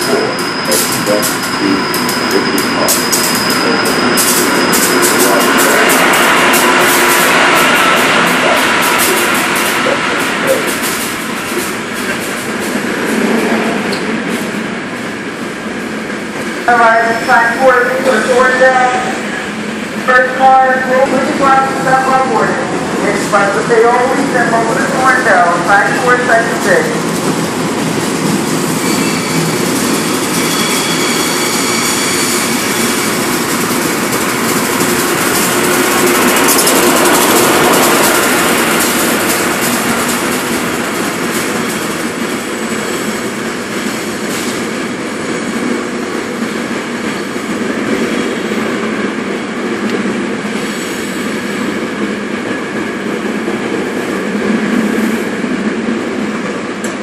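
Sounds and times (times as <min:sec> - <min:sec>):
train wheels rumbling on rail: 0:00.0 - 0:57.0
high squealing tones: 0:28.7 - 0:32.9.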